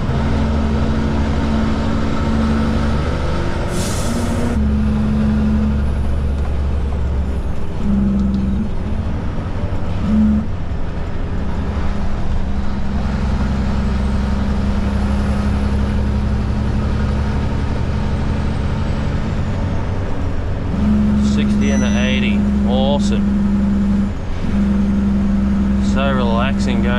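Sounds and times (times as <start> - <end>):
diesel truck engine running: 0.0 - 26.9.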